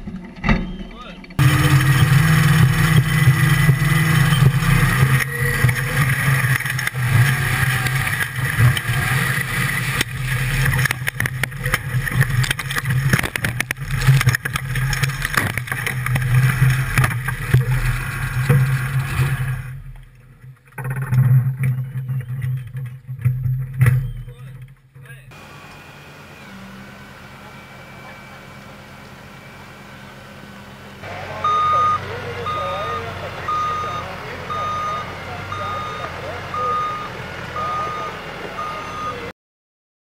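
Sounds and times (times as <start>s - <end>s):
knocks and rattles: 0.0s - 25.0s
race car engine running: 1.2s - 21.0s, 25.1s - 39.3s.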